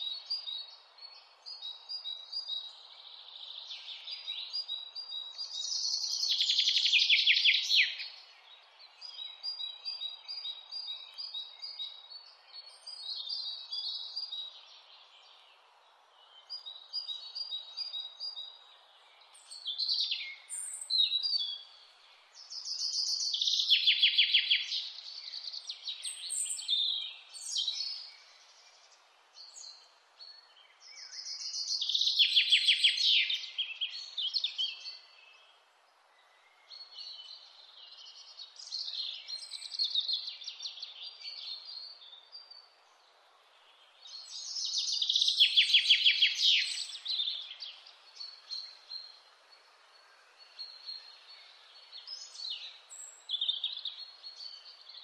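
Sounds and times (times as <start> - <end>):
faint steady hiss: 0.0 - 55.0
bird chirps: 16.4 - 35.5, 36.4 - 42.8, 44.0 - 49.3.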